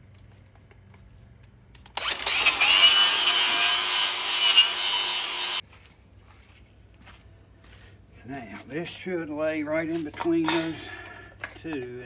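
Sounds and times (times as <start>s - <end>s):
tool grinding rusted metal: 2.0s - 5.6s.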